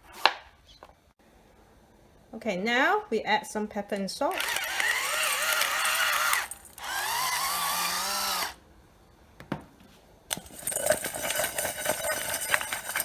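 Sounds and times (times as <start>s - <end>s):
electric grinder motor whirring: 4.3s - 8.6s
light clinking: 10.3s - 13.0s.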